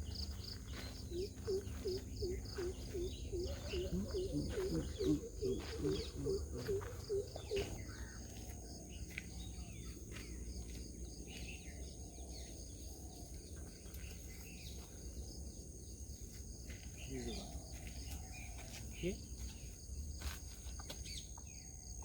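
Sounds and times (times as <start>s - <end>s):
high-pitched insect drone: 0.0s - 15.2s
low repeated calls: 0.0s - 15.2s, 16.7s - 19.8s
birds chirping and calling: 0.0s - 22.0s.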